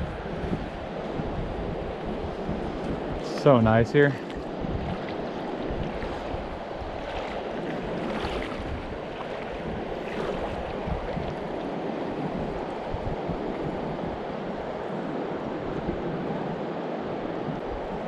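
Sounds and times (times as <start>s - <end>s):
river rushing: 0.0s - 18.0s.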